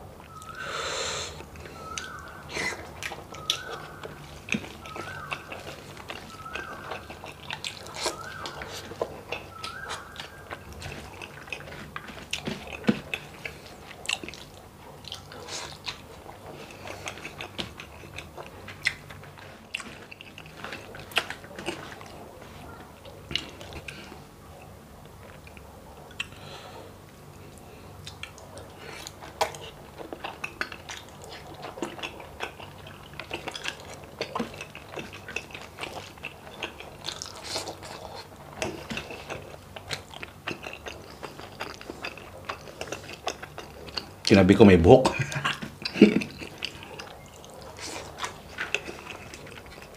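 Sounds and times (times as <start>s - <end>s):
chewing food: 1.3s - 49.9s.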